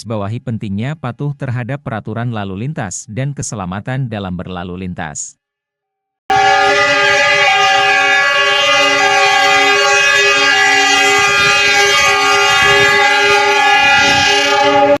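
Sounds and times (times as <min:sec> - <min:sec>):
train horn sounding: 0:06.3 - 0:15.0.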